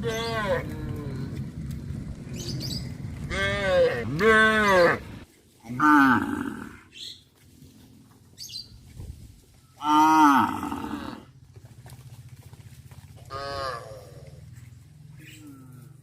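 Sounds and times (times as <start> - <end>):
cattle mooing: 0.0 - 1.4, 3.2 - 5.1, 5.7 - 6.8, 9.8 - 11.3, 13.3 - 14.5
low pulsing hum: 0.0 - 5.3.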